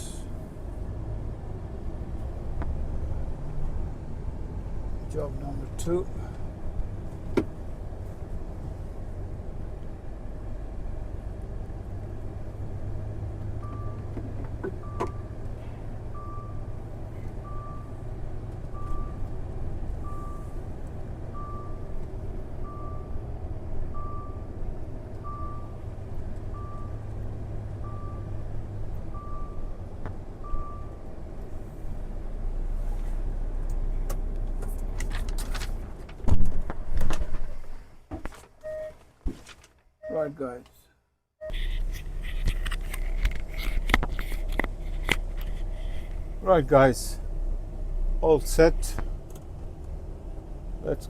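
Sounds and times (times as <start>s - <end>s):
truck engine rumbling: 0.0s - 51.0s
electronic warning beeper: 40.0s - 40.4s.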